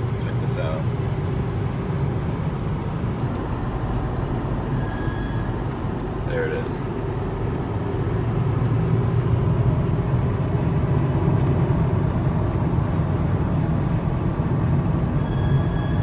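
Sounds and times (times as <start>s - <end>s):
car road and engine noise: 0.0s - 16.0s
high-pitched brake squeal: 4.7s - 5.6s, 15.2s - 16.0s.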